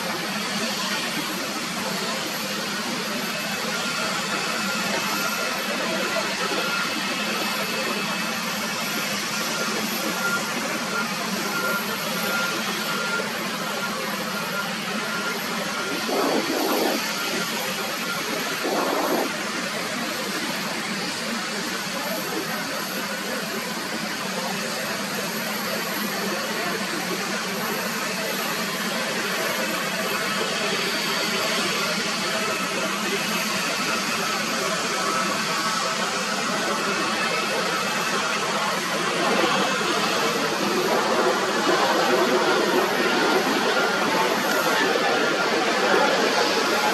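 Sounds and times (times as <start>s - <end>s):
jet engine rushing: 0.2s - 21.2s, 32.3s - 46.9s.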